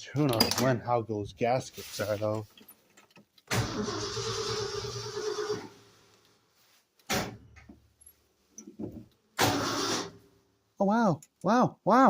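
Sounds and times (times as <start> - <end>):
engine cranking by starter: 3.5 - 5.8, 9.4 - 10.2.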